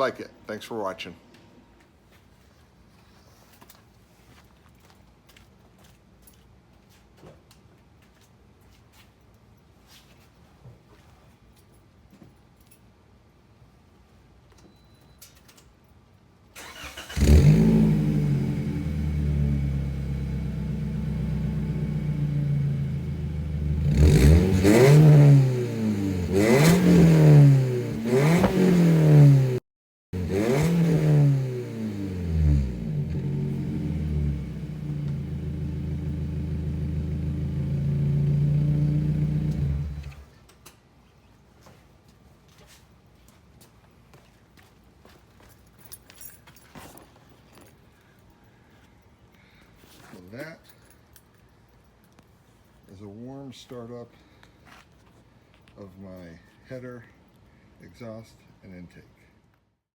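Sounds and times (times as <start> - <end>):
car engine cranking and starting: 16.6 - 29.6, 30.2 - 40.3
car engine idling and revving: 16.8 - 29.6, 30.2 - 40.2.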